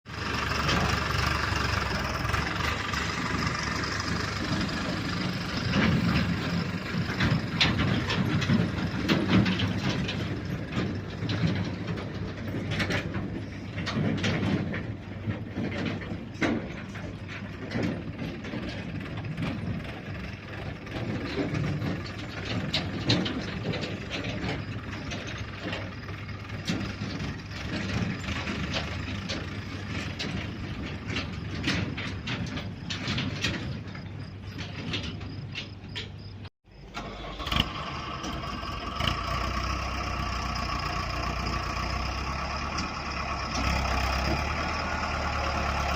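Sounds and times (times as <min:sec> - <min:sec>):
tractor engine running: 0:00.0 - 0:45.9
mechanical rattling and clatter: 0:00.1 - 0:45.9.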